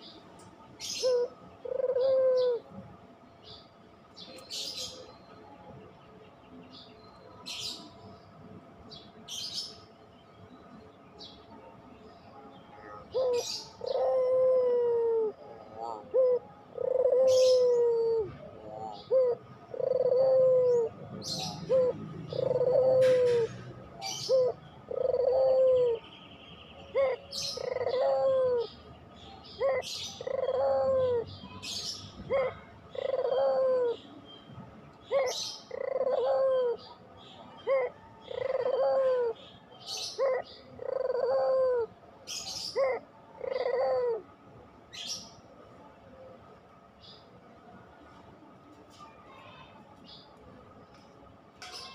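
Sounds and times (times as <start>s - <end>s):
dove cooing: 0.8s - 2.8s, 12.8s - 26.1s, 26.8s - 28.8s, 29.4s - 34.2s, 35.0s - 44.3s
small birds chirping: 18.8s - 41.3s.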